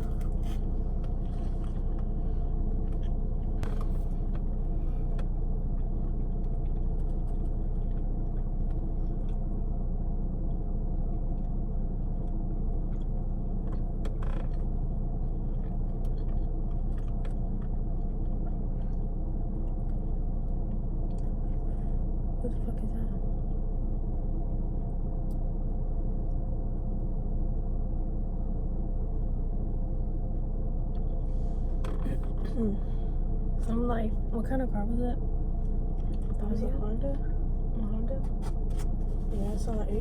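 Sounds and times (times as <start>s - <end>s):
car idling: 0.0s - 40.0s
eating noises: 15.4s - 19.0s.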